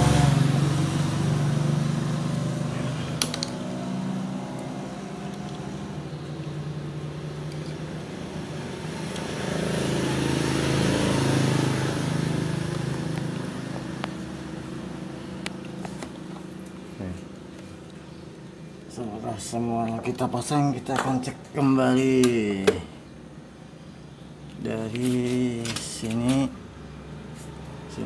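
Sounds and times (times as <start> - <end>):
vehicle engine passing by: 0.0 - 17.1.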